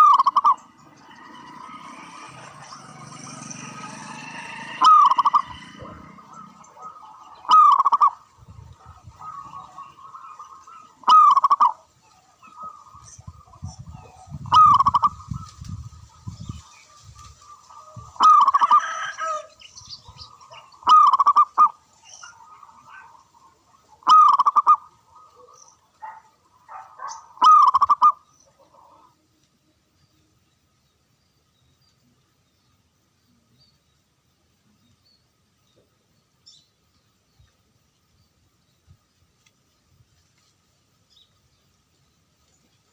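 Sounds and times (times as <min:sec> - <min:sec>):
dove cooing: 0:00.0 - 0:16.6, 0:17.4 - 0:19.5, 0:20.2 - 0:29.3.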